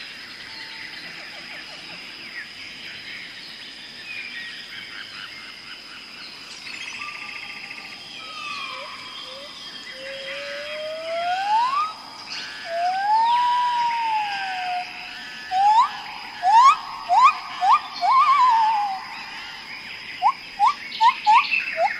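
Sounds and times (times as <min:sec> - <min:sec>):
high insect drone: 0:00.0 - 0:21.9
bird whistled calls: 0:08.2 - 0:19.5, 0:20.2 - 0:21.9.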